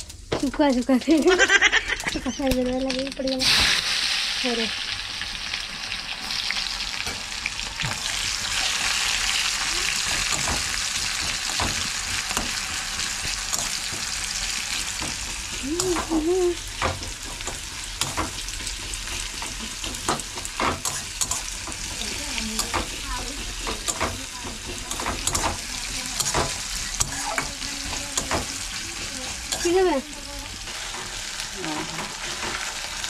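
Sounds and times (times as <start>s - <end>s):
chicken sizzling in hot oil: 0.0s - 33.0s
metal spatula scraping a pan: 17.0s - 32.8s.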